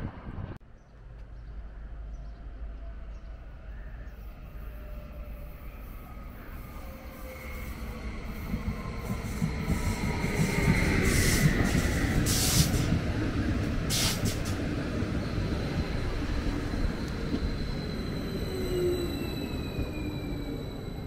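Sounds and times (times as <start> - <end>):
train wheels rumbling on rail: 4.5 - 21.0
short air hisses: 12.3 - 12.9, 13.9 - 14.6.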